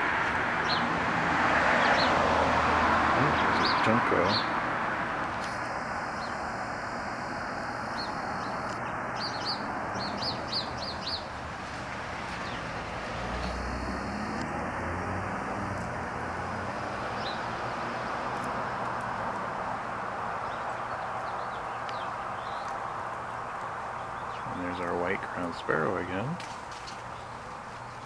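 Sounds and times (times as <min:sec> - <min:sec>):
steady background rush: 0:03.1 - 0:24.8
small songbird chirping: 0:03.2 - 0:04.6, 0:05.5 - 0:11.4, 0:12.3 - 0:14.4, 0:17.1 - 0:17.5, 0:20.4 - 0:25.5.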